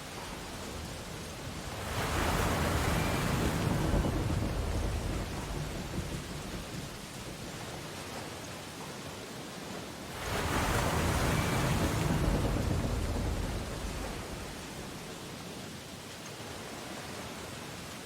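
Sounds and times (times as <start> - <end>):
ocean surf on beach: 0.0 - 18.0
wave breaking: 0.1 - 7.4, 10.1 - 15.2.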